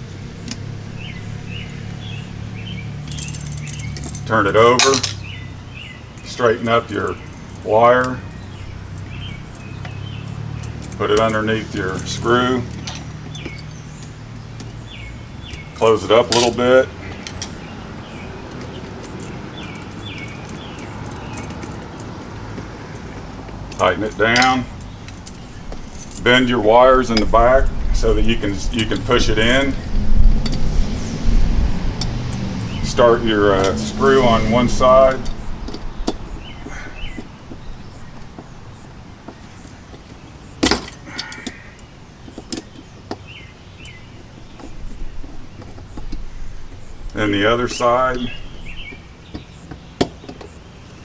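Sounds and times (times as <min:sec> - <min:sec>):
bird chirping: 0:00.0 - 0:51.0
steady low background noise: 0:00.0 - 0:51.0.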